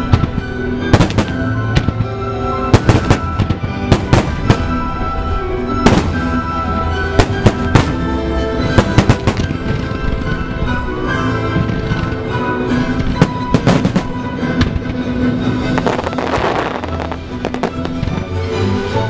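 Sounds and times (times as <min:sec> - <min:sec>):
music: 0:00.0 - 0:19.0
firework bursts: 0:15.7 - 0:18.1.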